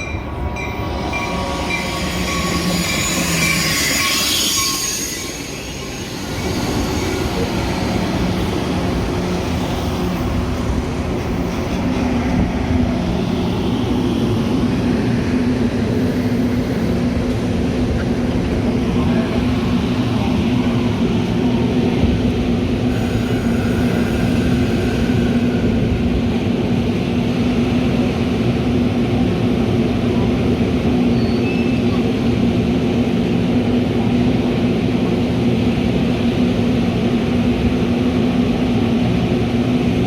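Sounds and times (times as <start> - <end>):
train running on rails: 0.0 - 40.0
high-pitched squealing: 0.9 - 8.8.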